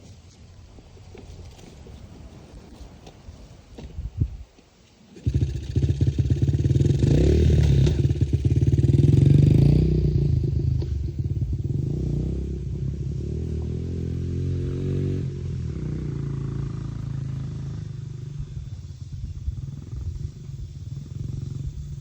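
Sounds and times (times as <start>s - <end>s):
dirt bike engine running: 5.1s - 22.0s.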